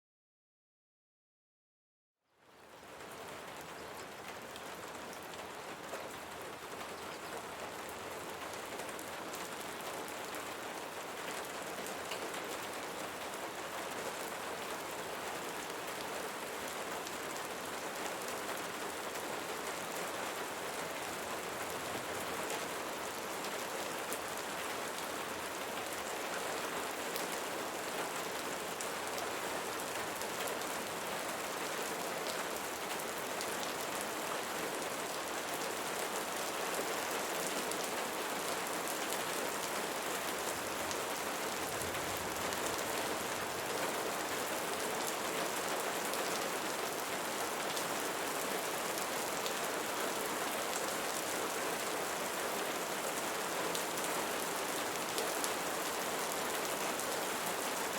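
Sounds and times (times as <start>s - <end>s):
rain pattering on a surface: 2.3s - 57.9s.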